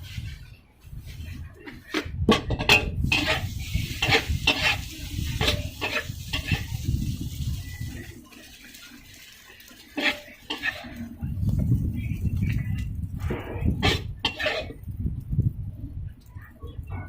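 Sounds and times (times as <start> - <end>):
metal spatula clanking in wok: 1.9 - 6.7, 9.8 - 11.0
food frying: 2.7 - 15.5.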